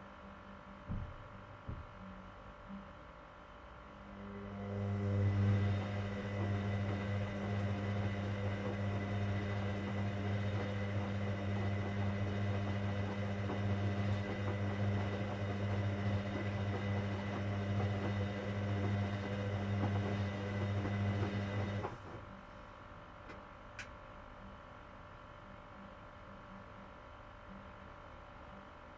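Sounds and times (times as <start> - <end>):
washing machine humming: 4.1 - 22.5.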